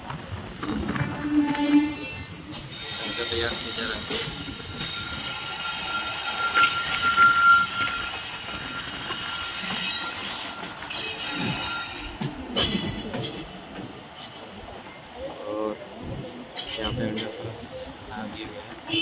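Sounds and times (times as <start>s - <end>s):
train wheels squealing: 0.0s - 15.8s, 16.6s - 19.0s
train rumble: 0.0s - 19.0s
sharp clanks: 9.1s - 13.9s.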